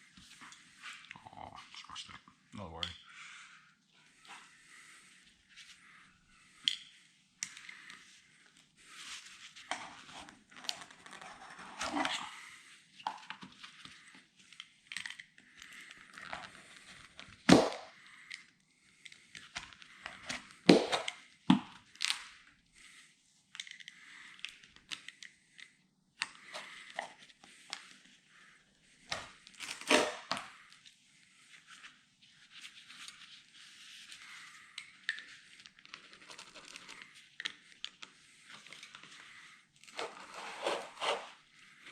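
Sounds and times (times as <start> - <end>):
scraping and rubbing on rubber seal: 39.8 - 41.4.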